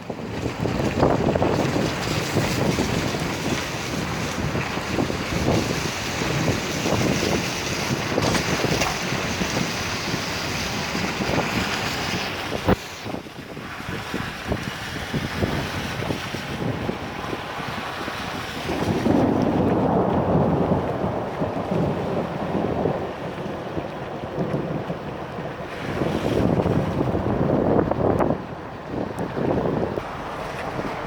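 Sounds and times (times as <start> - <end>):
wind buffeting the microphone: 0.0 - 31.0
heavy rain: 16.8 - 26.0.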